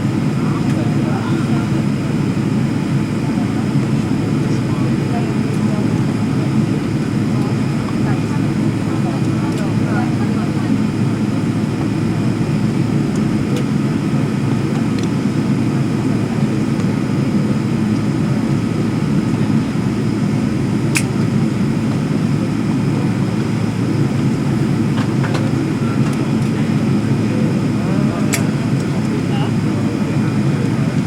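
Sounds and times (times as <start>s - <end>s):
airliner cabin drone: 0.0s - 31.0s
sharp click: 20.9s - 21.1s.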